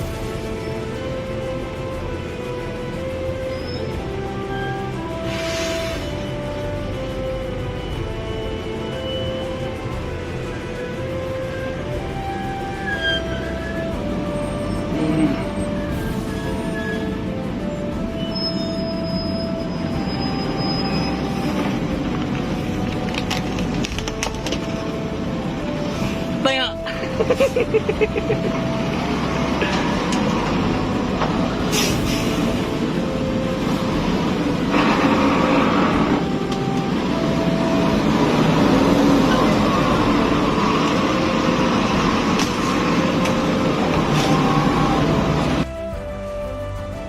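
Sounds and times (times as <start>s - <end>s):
low rumble of engine and road: 0.0s - 47.0s
truck brakes squealing: 3.4s - 6.2s, 7.9s - 9.8s, 12.4s - 22.8s, 25.8s - 45.6s.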